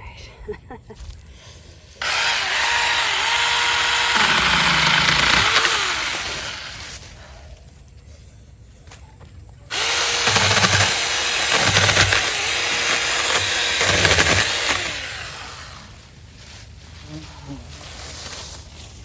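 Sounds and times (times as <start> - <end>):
electric chainsaw cutting branches: 2.0 - 7.0, 9.7 - 16.0.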